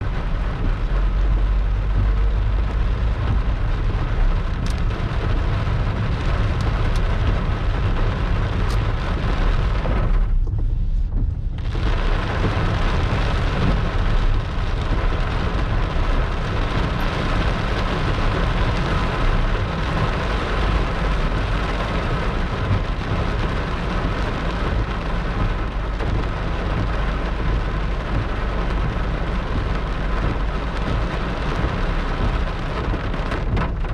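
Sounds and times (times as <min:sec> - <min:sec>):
constant low rumble: 0:00.0 - 0:33.9
heavy rain pouring: 0:00.0 - 0:33.9.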